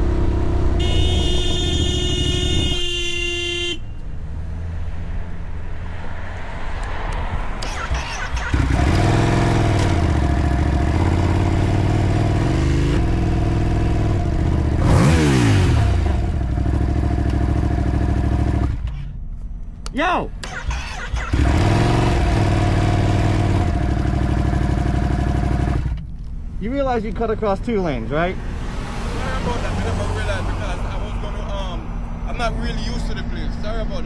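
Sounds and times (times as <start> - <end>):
motorcycle engine revving: 0.0 - 2.9, 7.4 - 19.0, 20.4 - 26.0, 28.2 - 31.6
road traffic noise: 0.0 - 34.0
vehicle horn: 0.6 - 4.1.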